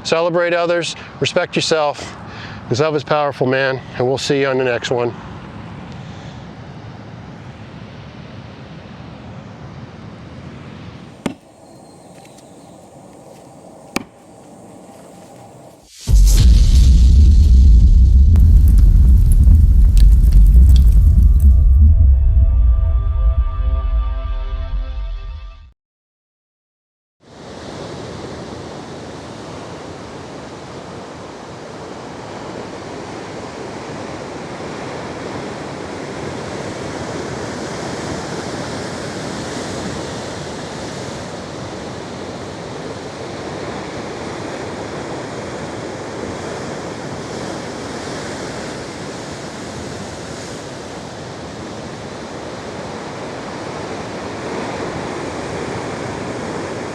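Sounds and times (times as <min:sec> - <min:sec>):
ocean surf washing on beach: 0:27.3 - 0:56.9.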